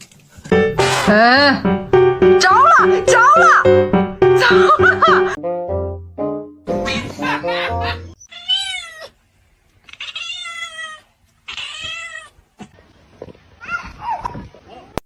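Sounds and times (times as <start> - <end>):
cat meowing: 8.2 - 9.2, 9.9 - 12.4.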